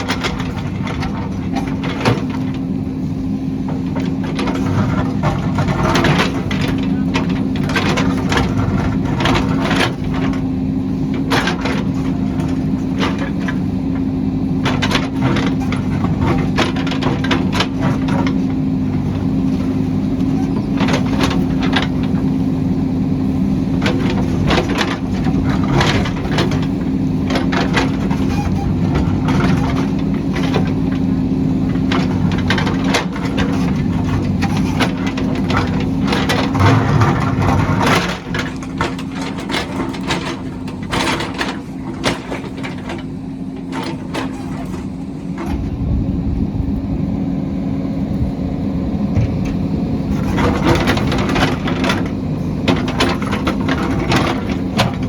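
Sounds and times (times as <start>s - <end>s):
diesel engine running: 0.0s - 55.0s
metal clanks and knocks: 31.7s - 45.8s, 49.1s - 55.0s.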